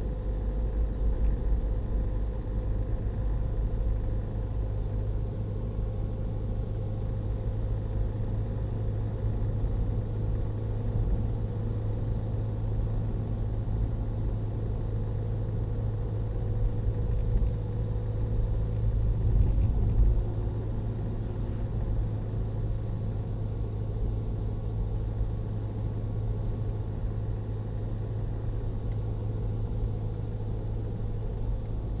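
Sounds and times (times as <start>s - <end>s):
car engine low rumble: 0.0s - 32.0s.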